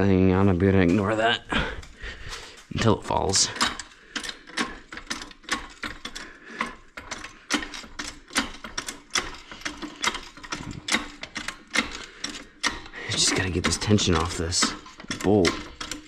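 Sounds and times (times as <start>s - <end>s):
metal tools clinking: 0.7s - 16.0s
ratchet wrench clicking: 3.4s - 16.0s.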